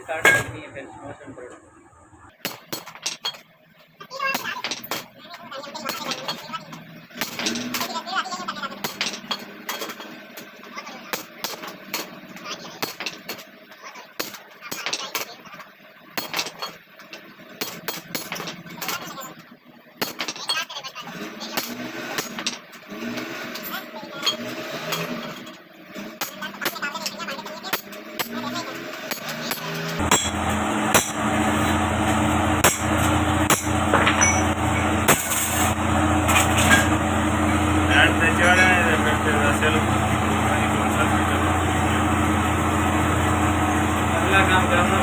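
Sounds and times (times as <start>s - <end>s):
hand tools clinking on metal: 8.7s - 10.5s, 32.6s - 37.0s
hammer striking metal: 29.1s - 37.0s
low machine hum: 29.6s - 45.0s.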